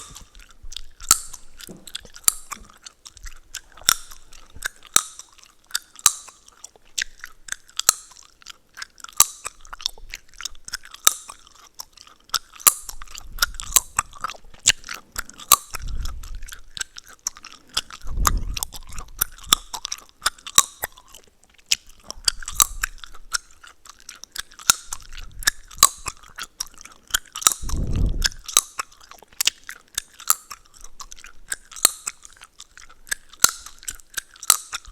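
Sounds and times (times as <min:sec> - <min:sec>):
gum chewing mouth sounds: 0:00.0 - 0:34.9
gum cracking and snapping: 0:00.0 - 0:34.9.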